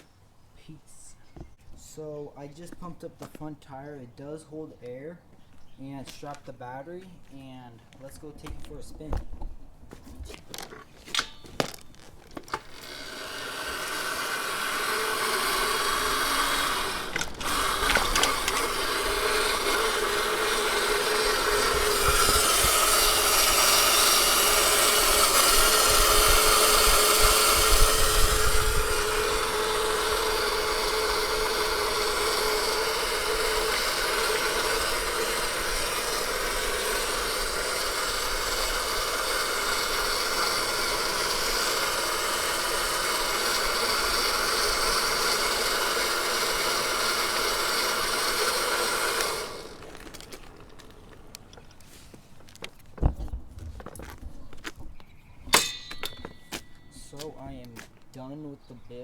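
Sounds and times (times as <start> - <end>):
electric motor whining: 12.2 - 54.1.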